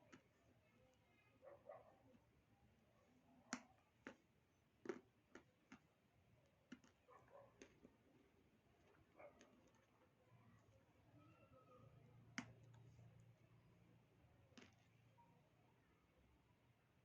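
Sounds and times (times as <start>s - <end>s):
dry clay crunching: 3.5s - 10.0s.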